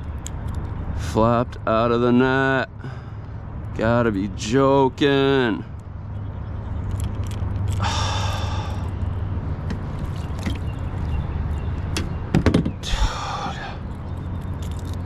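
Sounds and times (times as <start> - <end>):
man sighing: 7.8 - 8.9
sharp knocks: 12.0 - 12.8.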